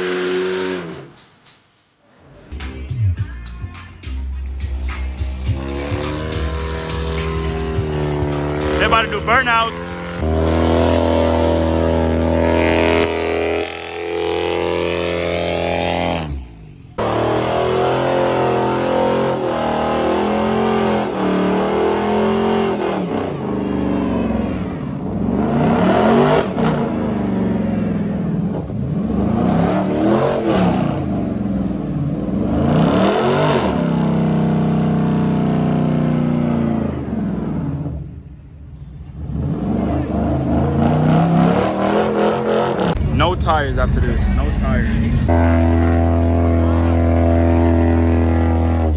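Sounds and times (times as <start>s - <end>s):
car engine revving hard: 0.0s - 1.1s, 5.5s - 38.2s, 39.0s - 48.9s
spinning tyres hissing: 18.1s - 44.1s.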